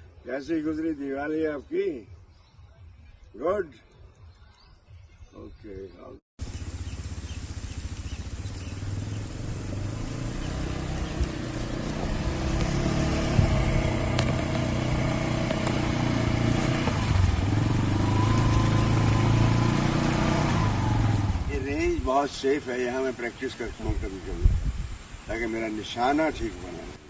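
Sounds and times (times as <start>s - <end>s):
vehicle engine running: 6.4s - 21.8s.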